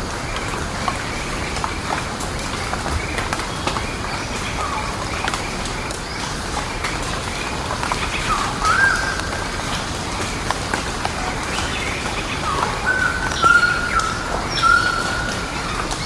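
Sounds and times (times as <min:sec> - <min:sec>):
birds whistling calls: 0:08.0 - 0:10.4, 0:11.2 - 0:16.0.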